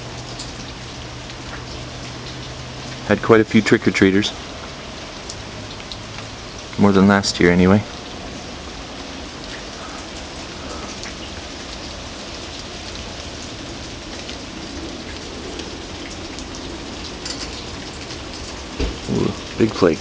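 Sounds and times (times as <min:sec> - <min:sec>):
hiss of wet snowfall: 0:08.2 - 0:19.7.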